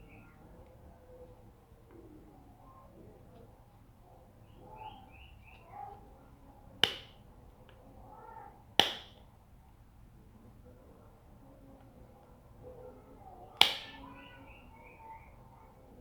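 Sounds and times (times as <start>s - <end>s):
faint animal calls: 4.2s - 6.1s, 12.6s - 16.0s
plastic snaps: 6.8s - 7.8s, 8.8s - 9.3s, 13.6s - 14.1s.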